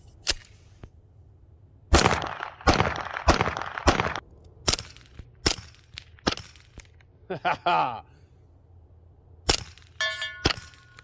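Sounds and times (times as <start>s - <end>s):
suppressed gunshots: 1.9s - 6.9s, 9.4s - 11.0s.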